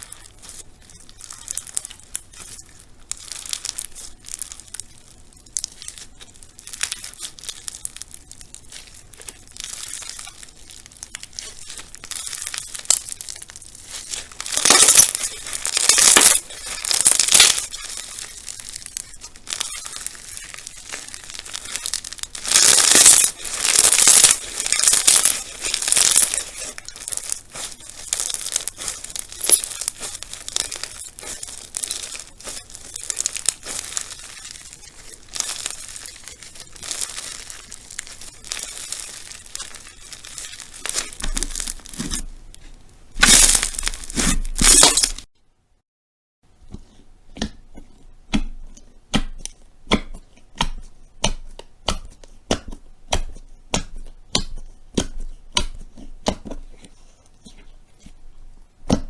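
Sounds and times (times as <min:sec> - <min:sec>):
crunchy slime crackling and popping: 0:00.0 - 0:45.3, 0:46.6 - 0:59.0
sharp pops: 0:14.0 - 0:42.3, 0:43.1 - 0:45.3.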